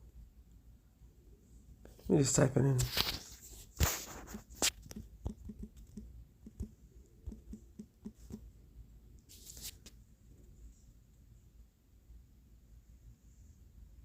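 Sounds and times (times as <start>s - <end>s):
brief rustle: 2.8s - 4.9s.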